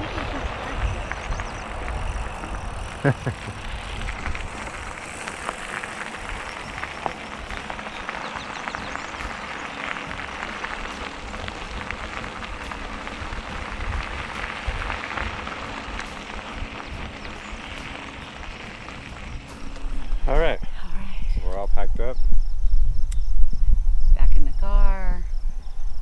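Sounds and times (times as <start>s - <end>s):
bike tyres crunching on gravel: 0.0s - 20.8s.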